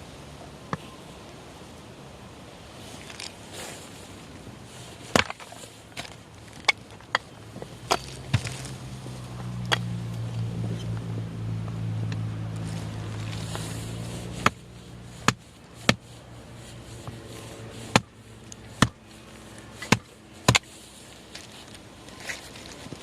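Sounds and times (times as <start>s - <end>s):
low steady hum: 0.0s - 23.0s
hatchet splitting firewood: 5.1s - 10.3s, 13.1s - 16.2s, 17.0s - 20.8s.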